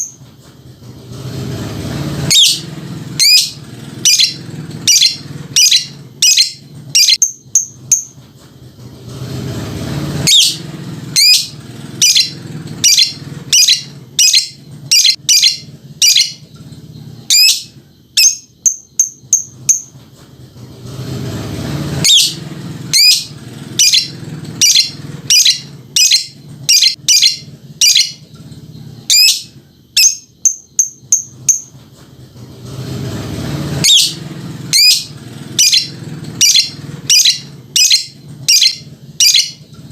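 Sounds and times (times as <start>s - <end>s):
lovebird chattering call: 2.3s - 8.1s, 10.2s - 10.6s, 11.2s - 16.4s, 17.2s - 19.9s, 22.0s - 28.2s, 29.0s - 31.7s, 33.8s - 39.6s.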